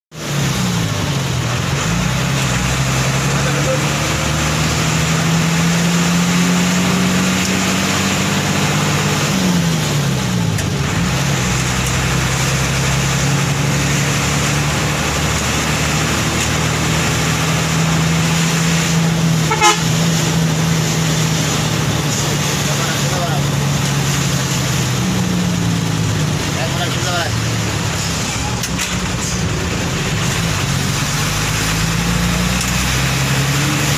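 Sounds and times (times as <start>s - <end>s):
road noise: 0.1s - 33.9s
heavy vehicle horn blast: 19.4s - 20.4s.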